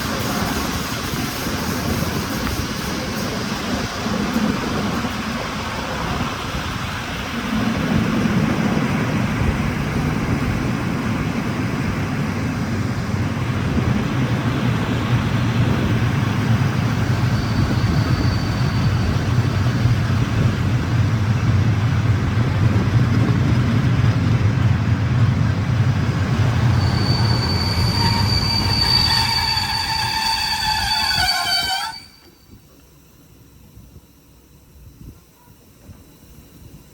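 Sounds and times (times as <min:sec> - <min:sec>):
train rumble: 0:00.0 - 0:34.0
high wheel squeal: 0:16.2 - 0:20.1, 0:26.6 - 0:32.6.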